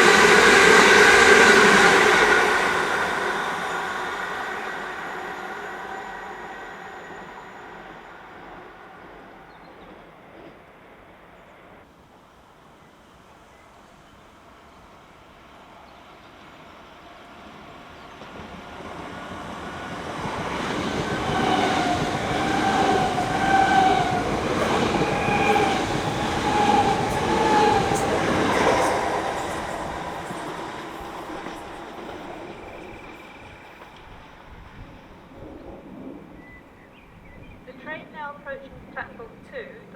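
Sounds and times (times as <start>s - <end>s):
wavering whine: 0.0s - 10.0s
passenger train passing: 0.0s - 39.9s.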